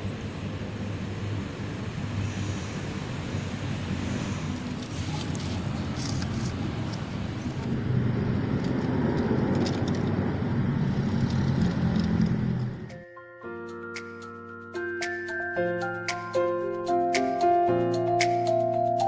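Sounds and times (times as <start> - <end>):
road vehicle rumble: 0.0 - 13.0.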